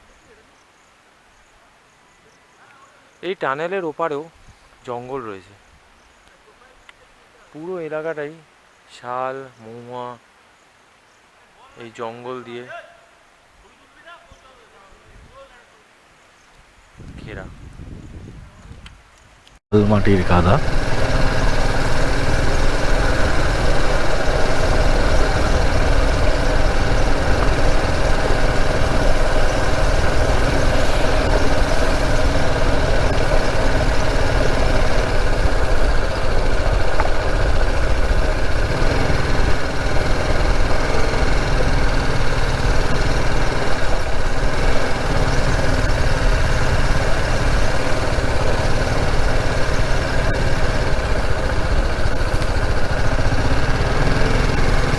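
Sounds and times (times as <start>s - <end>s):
motorcycle engine running: 19.8s - 54.9s.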